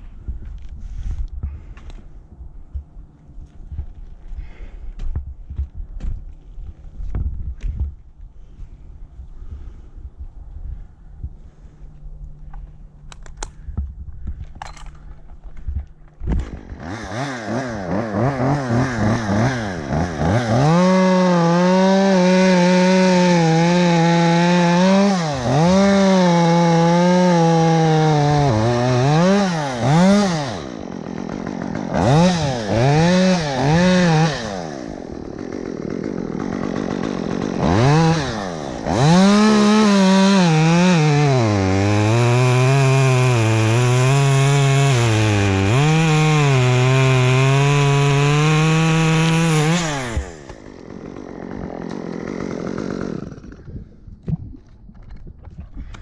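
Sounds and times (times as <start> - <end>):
chainsaw revving and cutting: 16.3 - 54.1.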